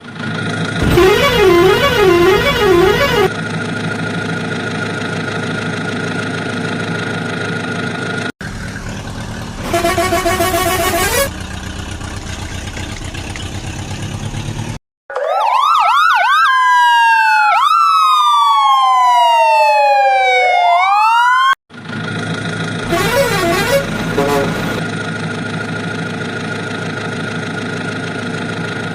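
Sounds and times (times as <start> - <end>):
vehicle drone: 0.0 - 14.8, 21.7 - 28.4
police siren wailing: 0.8 - 3.3, 15.1 - 21.6, 22.9 - 24.8.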